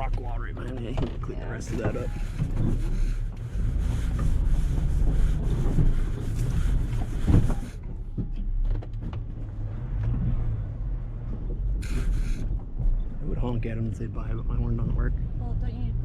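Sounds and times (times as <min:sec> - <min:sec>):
truck engine rumbling: 0:00.0 - 0:16.0
hiss: 0:11.8 - 0:12.4.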